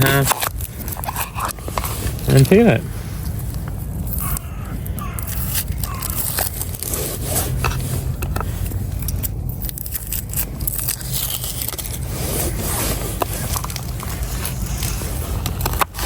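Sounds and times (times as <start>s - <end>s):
low steady rumble: 0.0s - 16.0s
peeling papery shallot skin: 4.1s - 16.0s.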